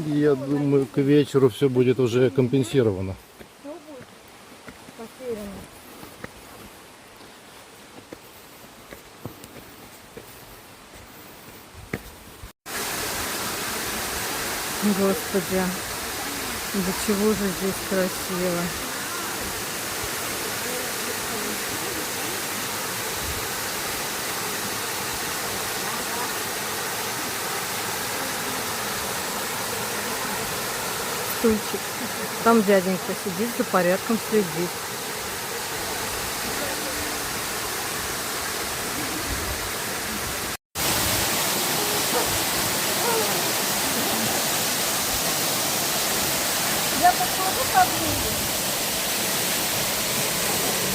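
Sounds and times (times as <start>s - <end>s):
waterfall rushing: 12.7s - 50.9s.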